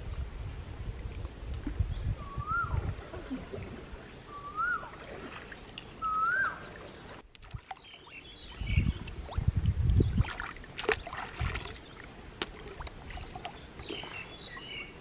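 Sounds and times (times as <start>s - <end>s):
wading through shallow water: 0.8s - 15.0s
bird whistle call: 4.3s - 4.9s, 6.0s - 6.7s.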